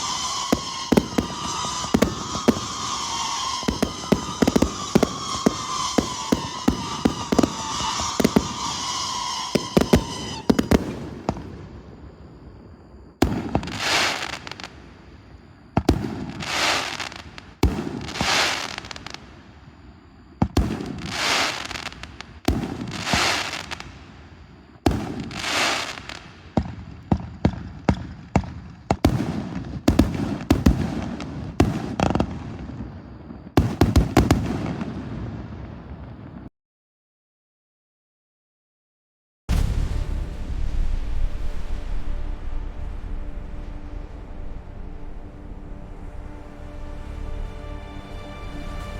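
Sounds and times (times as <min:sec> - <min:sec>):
hissing crackle: 0:00.0 - 0:27.0, 0:39.5 - 0:48.9
firework whistle: 0:00.0 - 0:36.4, 0:39.5 - 0:48.9
firework bangs: 0:00.0 - 0:36.5, 0:39.5 - 0:47.9.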